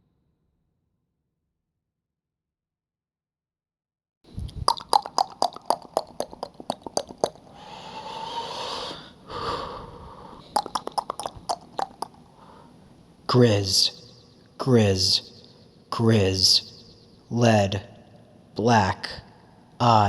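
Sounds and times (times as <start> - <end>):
tongue clicks: 4.4 - 7.5, 10.4 - 12.2
breathy hiss of exhaled air: 7.5 - 10.5.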